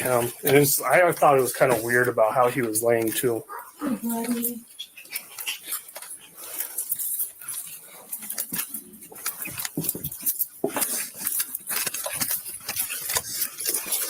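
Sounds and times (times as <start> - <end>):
metal gear clinking and rustling: 5.4 - 14.0.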